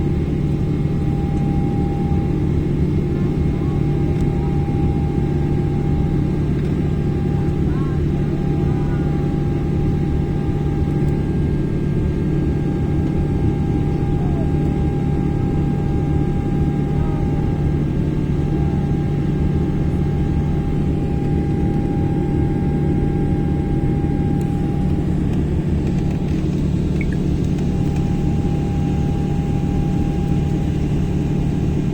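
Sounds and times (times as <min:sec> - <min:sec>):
jet engine drone in cabin: 0:00.0 - 0:31.9.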